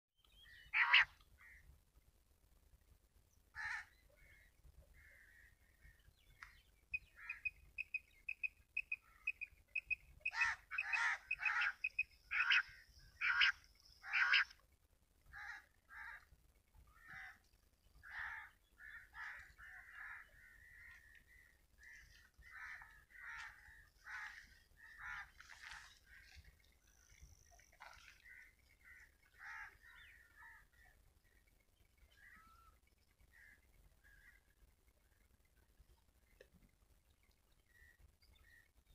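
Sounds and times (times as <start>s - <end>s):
harsh bird calls: 6.4s - 14.6s
high repeated bird notes: 7.0s - 14.5s.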